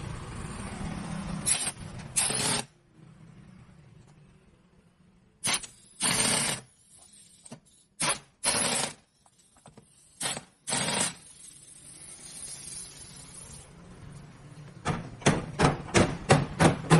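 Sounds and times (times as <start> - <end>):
compressed air tool hissing bursts: 1.4 - 2.7, 5.4 - 9.0.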